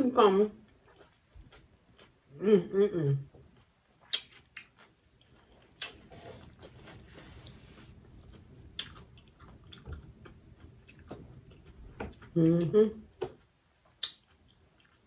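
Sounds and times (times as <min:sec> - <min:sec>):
chewing and wet mouth sounds: 0:00.6 - 0:02.2, 0:03.3 - 0:15.0.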